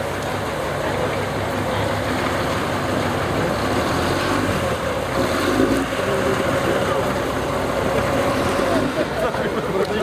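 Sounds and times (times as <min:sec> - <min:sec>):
truck engine rumbling: 0:00.0 - 0:10.0.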